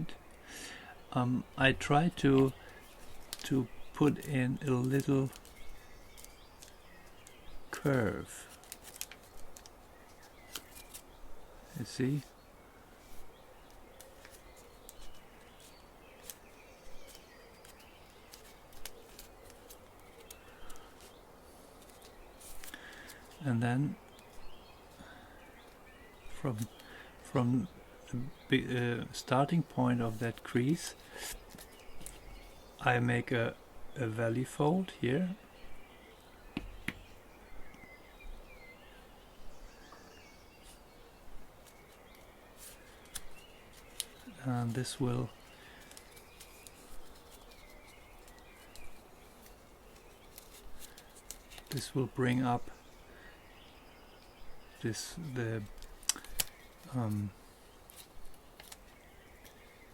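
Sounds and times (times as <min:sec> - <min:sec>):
faint steady hiss: 0:00.0 - 0:59.9
paper crinkling: 0:02.2 - 0:12.3, 0:13.0 - 0:23.4, 0:30.1 - 0:32.5, 0:41.6 - 0:52.4, 0:55.3 - 0:59.9.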